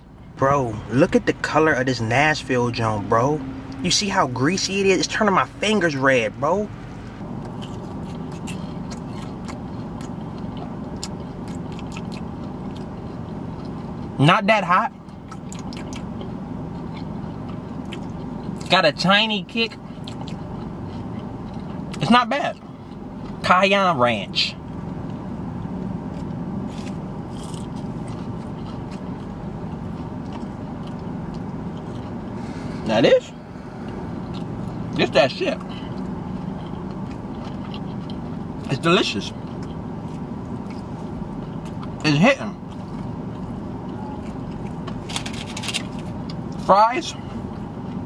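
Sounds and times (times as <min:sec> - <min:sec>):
low car cabin hum: 0:00.0 - 0:48.0
crunchy chewing: 0:06.7 - 0:14.2, 0:14.9 - 0:23.6, 0:24.6 - 0:46.6.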